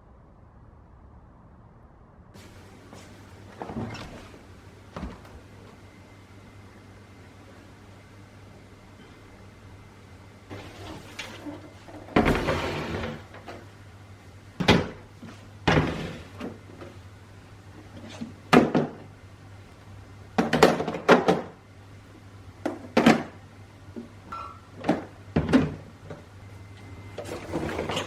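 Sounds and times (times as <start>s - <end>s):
faint low hum: 0.0s - 20.6s
containers and doors clunking: 3.5s - 5.8s, 10.5s - 13.7s, 24.0s - 28.0s.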